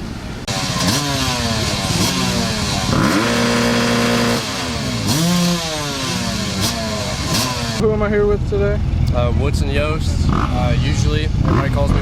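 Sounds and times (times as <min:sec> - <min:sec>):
dirt bike engine revving: 0:00.5 - 0:08.0, 0:10.1 - 0:12.0.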